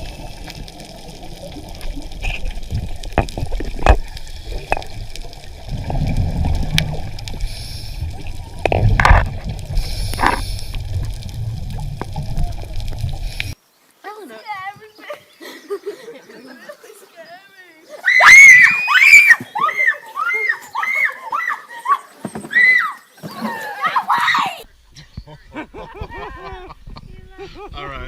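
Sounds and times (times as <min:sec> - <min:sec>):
water splashing and sloshing: 0:00.0 - 0:13.6.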